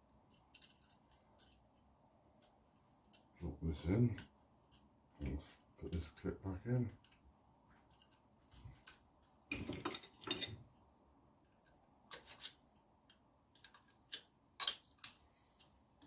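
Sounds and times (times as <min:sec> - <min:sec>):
small metal parts clicking: 0:00.3 - 0:01.7, 0:02.4 - 0:03.3, 0:07.9 - 0:08.2, 0:11.4 - 0:15.8.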